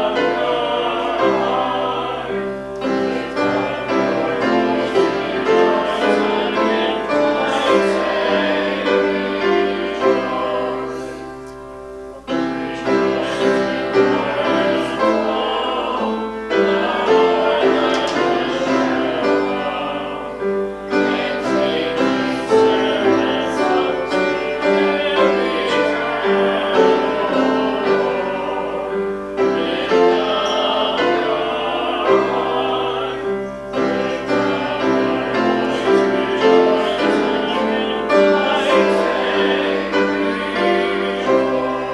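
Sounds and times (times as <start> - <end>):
piano accompaniment: 0.0 - 41.9
person singing: 12.2 - 41.9.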